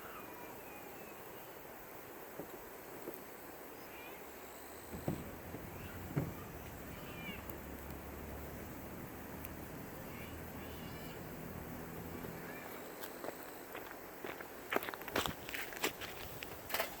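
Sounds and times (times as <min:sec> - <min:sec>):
sharp knocks: 0:04.9 - 0:07.1.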